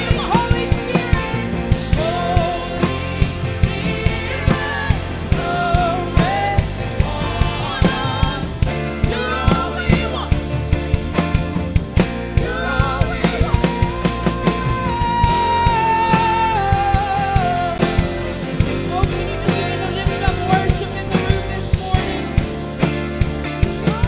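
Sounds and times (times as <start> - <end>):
drum kit: 0.0 - 24.0
live worship band playing: 0.0 - 24.0.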